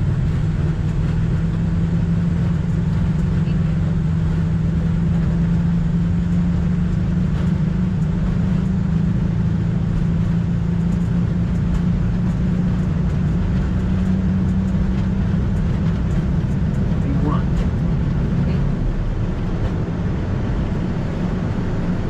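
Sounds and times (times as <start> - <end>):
low engine drone: 0.0 - 22.0
air rushing over cockpit: 11.9 - 22.0.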